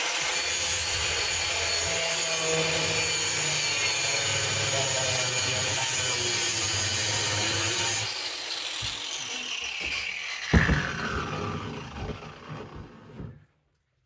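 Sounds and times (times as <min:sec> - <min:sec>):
angle grinder spinning down: 0:01.4 - 0:13.4.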